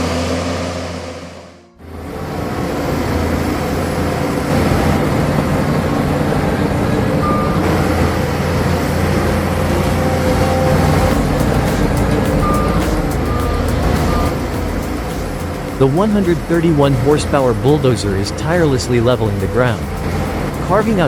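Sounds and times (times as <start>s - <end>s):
heavy diesel machinery running: 0.0s - 21.0s
short high beep: 10.3s - 16.0s.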